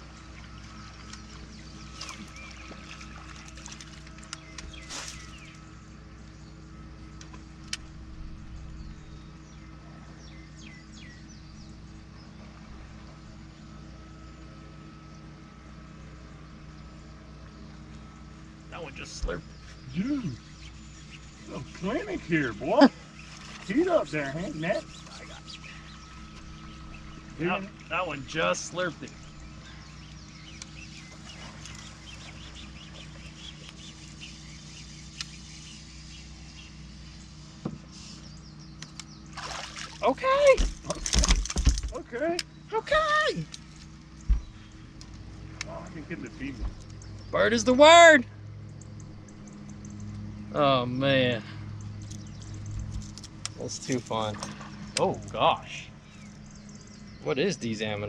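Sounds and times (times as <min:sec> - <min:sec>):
birds chirping: 0:00.0 - 0:58.0
steady low hum: 0:00.0 - 0:58.0
sharp click: 0:35.1 - 0:35.4.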